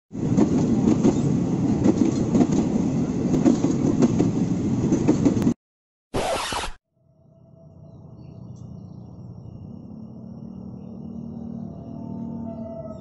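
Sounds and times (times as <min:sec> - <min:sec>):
train wheels clattering on rails: 0:00.3 - 0:05.5.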